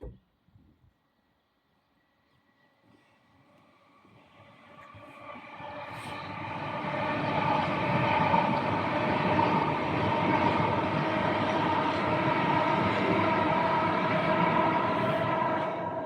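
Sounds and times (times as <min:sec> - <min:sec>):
many-toned train whine: 0:02.0 - 0:16.0
train rumbling past: 0:03.7 - 0:16.0.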